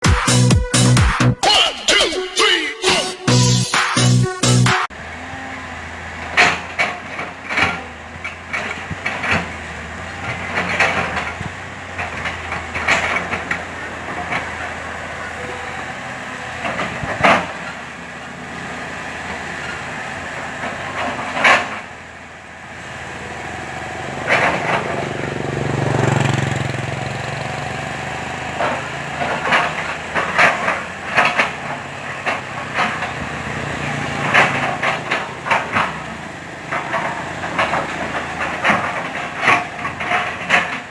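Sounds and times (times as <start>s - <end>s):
excavator diesel engine: 0.0s - 40.9s
sharp knocks and clanks: 28.5s - 40.9s.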